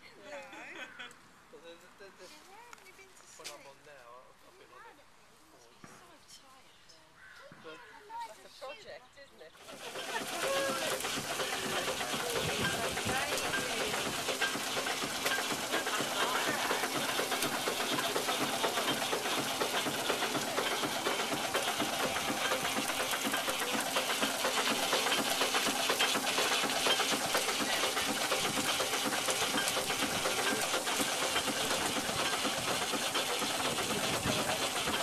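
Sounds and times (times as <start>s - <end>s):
machine clattering rapidly: 9.6s - 35.0s.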